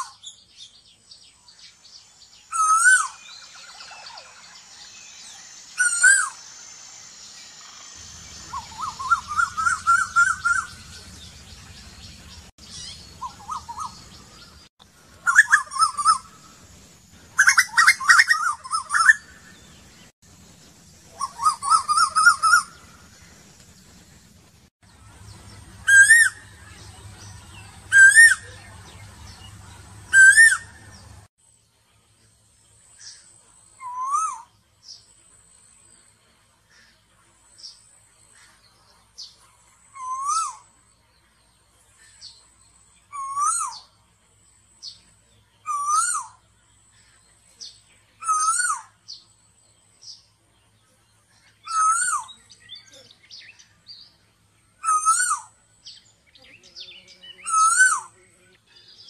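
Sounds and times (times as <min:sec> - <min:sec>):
bird rapid trills: 0:01.8 - 0:14.6
bird whistled calls: 0:02.2 - 0:11.8, 0:12.7 - 0:14.2, 0:15.2 - 0:16.5, 0:17.4 - 0:19.6, 0:21.1 - 0:22.9, 0:25.8 - 0:31.1, 0:33.8 - 0:34.5, 0:39.9 - 0:40.7, 0:43.0 - 0:43.9, 0:45.6 - 0:46.4, 0:48.2 - 0:49.2, 0:51.6 - 0:52.9, 0:54.8 - 0:56.0, 0:57.3 - 0:58.2.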